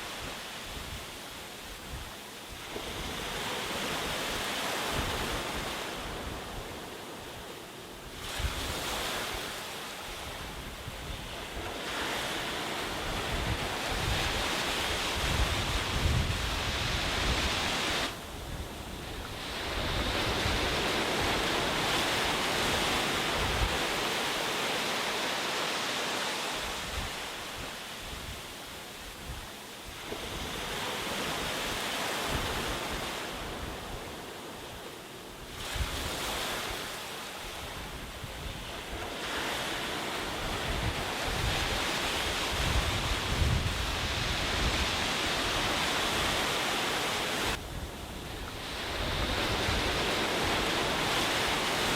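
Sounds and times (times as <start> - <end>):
sea waves breaking on beach: 0.0 - 51.9
wind buffeting microphone: 10.2 - 24.1, 37.6 - 51.9.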